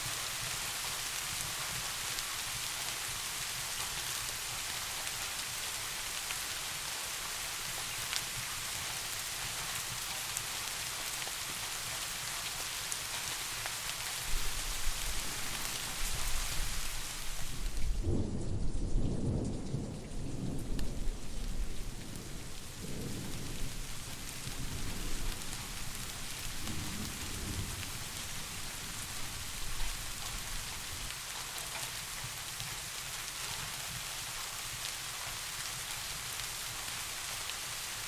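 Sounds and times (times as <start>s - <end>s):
rain falling: 0.0s - 38.0s
thunder rumbling: 14.3s - 30.9s.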